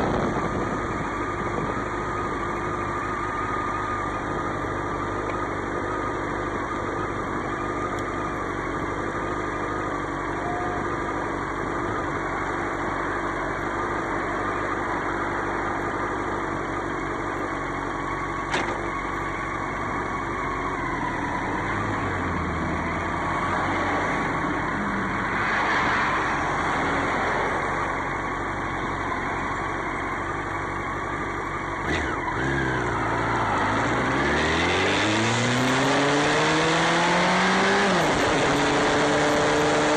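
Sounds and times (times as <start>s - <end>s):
motorcycle engine revving: 27.0s - 39.9s.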